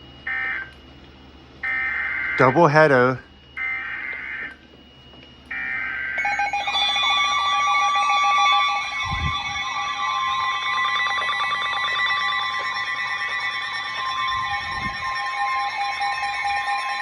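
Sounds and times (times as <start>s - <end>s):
electronic alarm tones warbling: 0.2s - 0.8s, 1.6s - 17.0s.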